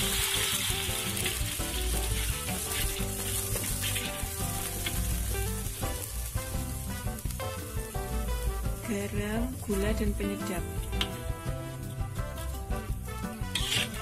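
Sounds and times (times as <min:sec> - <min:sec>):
spice paste sizzling in oil: 0:00.0 - 0:14.0.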